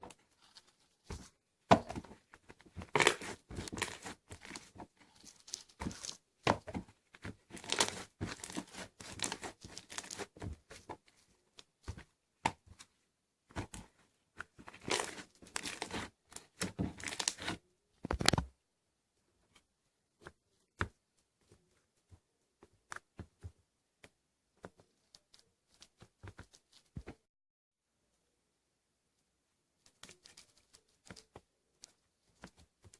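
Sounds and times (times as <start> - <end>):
slime crackling and popping: 2.8 - 6.2, 7.5 - 10.4, 14.7 - 17.5.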